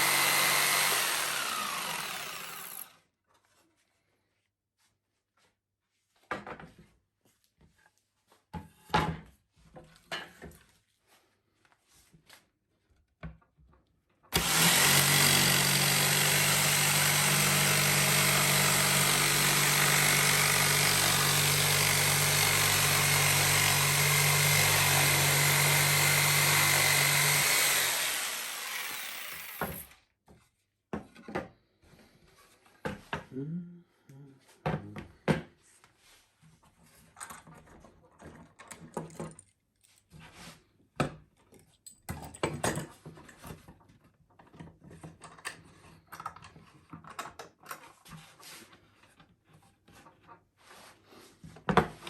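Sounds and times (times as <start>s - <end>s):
electric power tool running: 0.0s - 3.0s, 14.4s - 29.9s.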